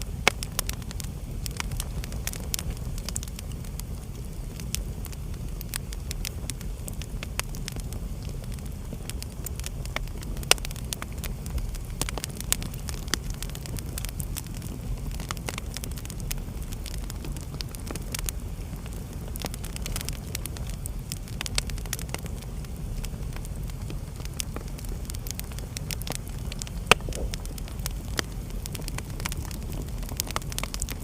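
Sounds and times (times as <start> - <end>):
fire crackling: 0.0 - 31.0
loud pop of fire: 23.3 - 31.0.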